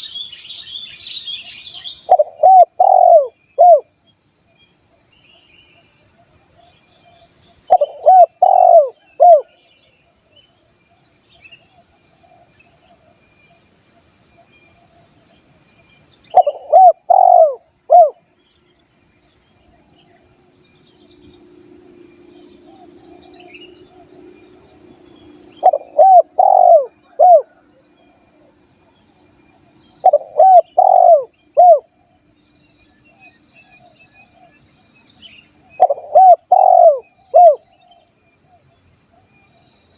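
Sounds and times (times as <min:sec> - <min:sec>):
faint bird chirps: 0:00.0 - 0:21.5, 0:22.4 - 0:39.9
dove cooing: 0:02.1 - 0:03.9, 0:07.7 - 0:09.6, 0:16.3 - 0:18.2, 0:25.6 - 0:27.6, 0:30.0 - 0:31.9, 0:35.7 - 0:37.7.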